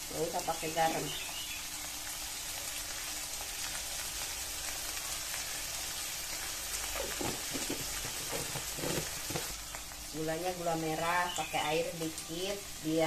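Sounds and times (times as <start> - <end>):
food sizzling in oil in a wok: 0.0 - 13.0.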